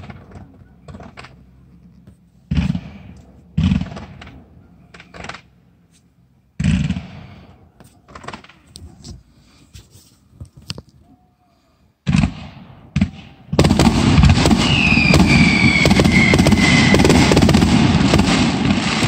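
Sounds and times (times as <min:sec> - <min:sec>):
fireworks bangs echoing: 0:02.5 - 0:05.6, 0:06.6 - 0:08.7, 0:12.0 - 0:19.0
fireworks pops and crackles: 0:08.0 - 0:09.2, 0:12.1 - 0:19.0.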